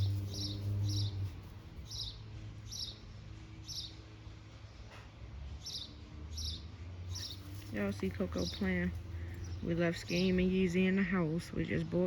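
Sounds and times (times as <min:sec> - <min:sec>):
small bird chirping: 0:00.0 - 0:04.0, 0:05.6 - 0:10.7.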